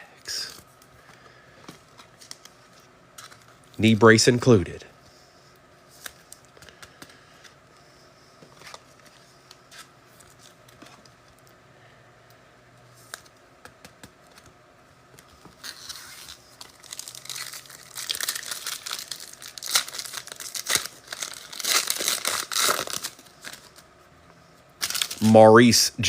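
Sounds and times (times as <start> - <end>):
foil wrapper tearing and crinkling: 15.5 - 23.8, 24.8 - 25.3.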